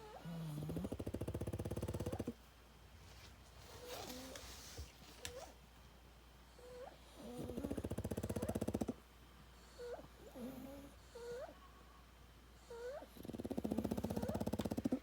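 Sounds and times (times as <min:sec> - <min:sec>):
dog snoring loudly: 0:00.0 - 0:02.4, 0:07.2 - 0:09.0, 0:12.7 - 0:15.0.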